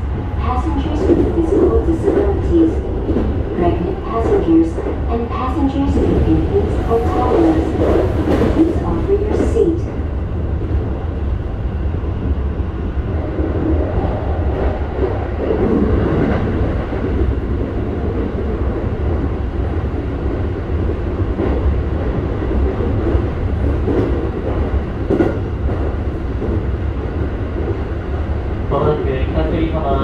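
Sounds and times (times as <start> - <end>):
train wheels rumbling on rails: 0.0 - 30.0
track knocks: 21.4 - 27.7.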